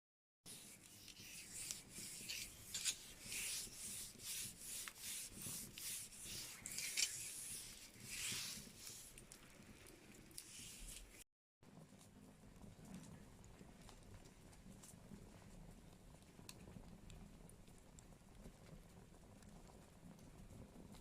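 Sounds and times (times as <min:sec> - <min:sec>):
fire hissing: 0:00.5 - 0:11.2
wood fire crackling: 0:00.5 - 0:21.0.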